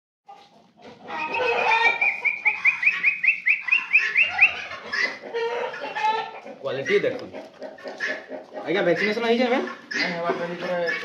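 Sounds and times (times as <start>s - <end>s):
birds calling: 0.3s - 11.0s.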